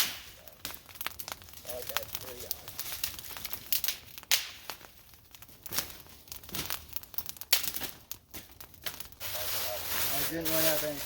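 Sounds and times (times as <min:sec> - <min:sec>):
crinkling and rustling: 0:00.5 - 0:11.0.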